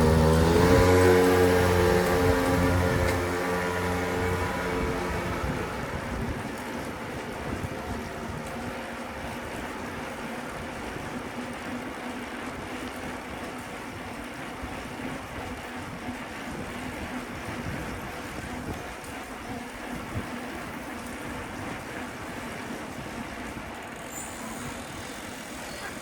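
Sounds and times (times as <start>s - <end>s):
wind on microphone: 0.0s - 11.2s, 15.2s - 20.6s
road noise: 0.0s - 26.0s.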